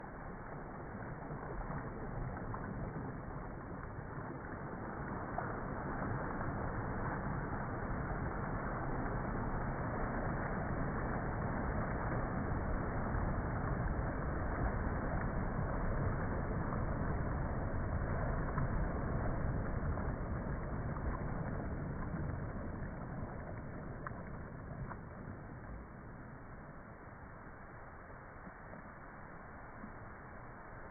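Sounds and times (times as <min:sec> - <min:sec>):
sea waves washing ashore: 0:00.0 - 0:30.9.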